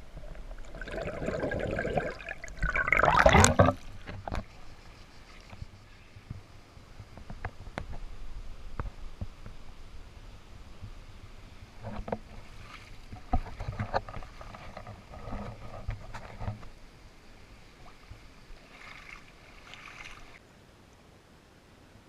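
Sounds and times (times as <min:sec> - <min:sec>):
water splashing and sloshing: 0:00.0 - 0:05.8, 0:11.7 - 0:20.4.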